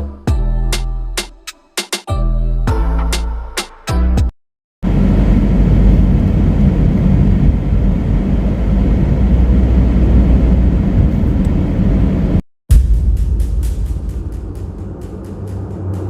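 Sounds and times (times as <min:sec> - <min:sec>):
car road and engine rumble: 0:04.8 - 0:12.4.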